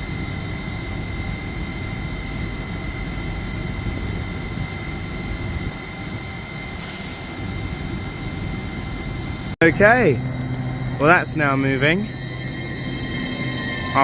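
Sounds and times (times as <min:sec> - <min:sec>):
idling train rumble and whine: 0:00.0 - 0:14.0.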